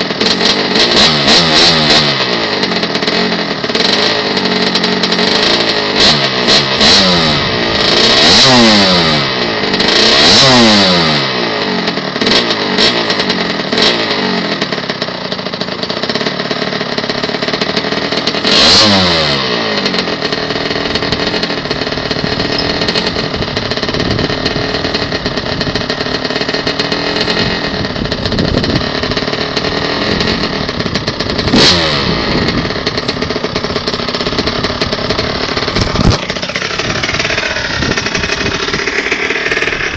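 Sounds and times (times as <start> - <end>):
two-stroke dirt bike engine revving: 0.0 - 39.9.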